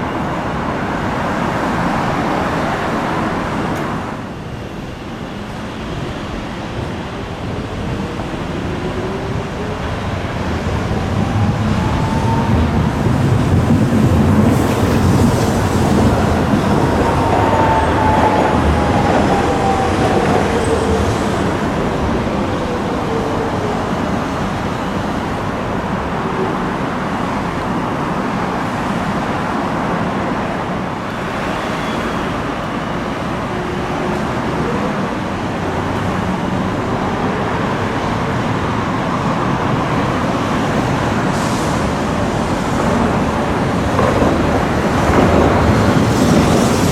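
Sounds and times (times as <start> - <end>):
streetcar motor whine: 0.0 - 28.5
street traffic: 0.0 - 46.9.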